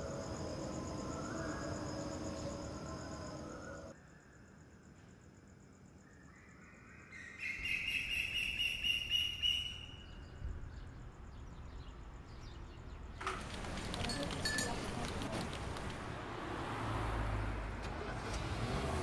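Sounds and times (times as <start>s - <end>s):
crickets chirping: 0.0s - 17.8s
bird chirping: 6.1s - 13.2s.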